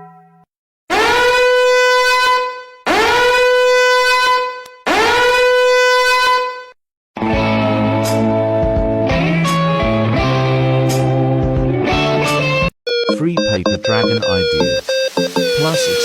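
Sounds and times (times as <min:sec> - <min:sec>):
horn blasts: 0:00.9 - 0:06.8.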